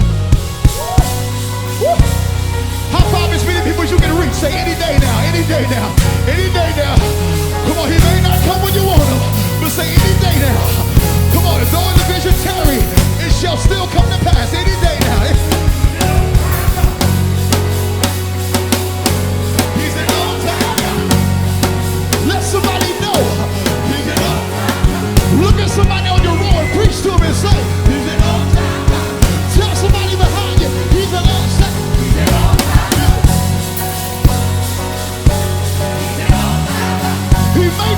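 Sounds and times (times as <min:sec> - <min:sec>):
bass and keyboard chords: 0:00.0 - 0:37.9
live rock band playing: 0:00.0 - 0:37.9
steady drum beat: 0:00.0 - 0:37.9
person singing: 0:02.9 - 0:17.6, 0:19.6 - 0:21.5, 0:22.2 - 0:33.8.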